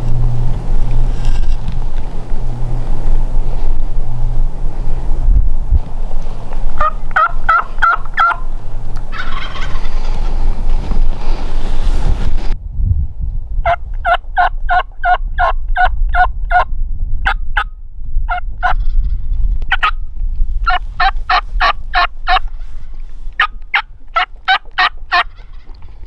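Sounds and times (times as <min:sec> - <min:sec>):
turkey yelping: 0:06.8 - 0:10.5, 0:23.4 - 0:25.9.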